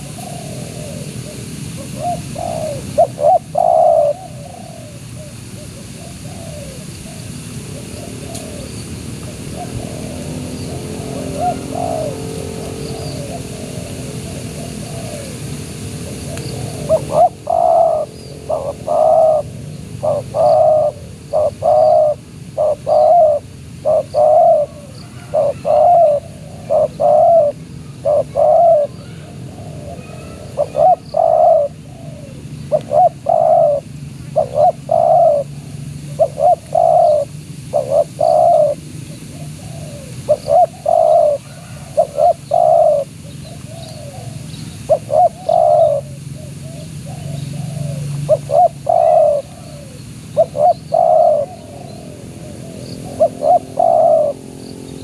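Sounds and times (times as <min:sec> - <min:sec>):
dove cooing: 0:00.0 - 0:55.0.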